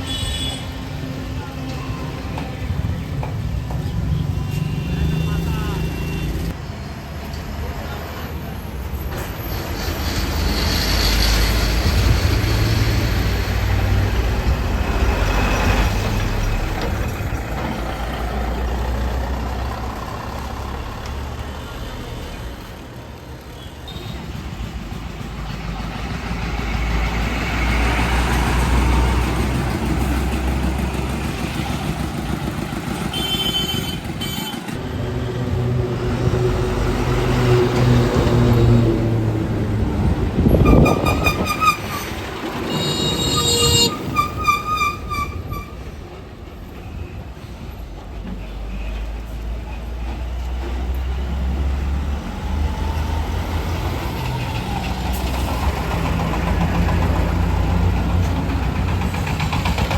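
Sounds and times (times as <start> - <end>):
heavy trucks passing: 0.0 - 59.9.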